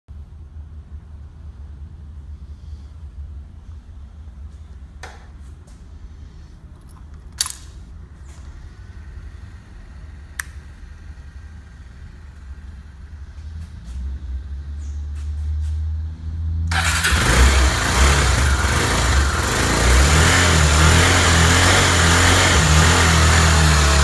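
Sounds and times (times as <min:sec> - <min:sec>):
sharp clicks: 0:06.9 - 0:07.8, 0:10.4 - 0:10.8
motorcycle engine idling: 0:08.0 - 0:14.9, 0:16.7 - 0:24.0.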